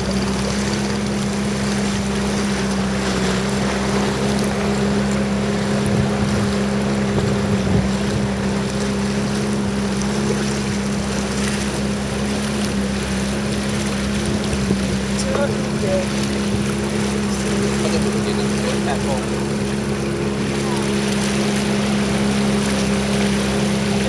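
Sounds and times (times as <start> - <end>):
small motorboat engine running: 0.0 - 24.0
water noise: 0.0 - 24.0
wind noise: 5.8 - 8.4.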